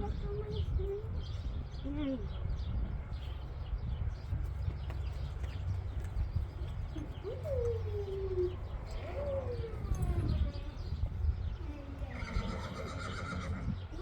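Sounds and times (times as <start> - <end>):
puppies whining: 6.9 - 13.1.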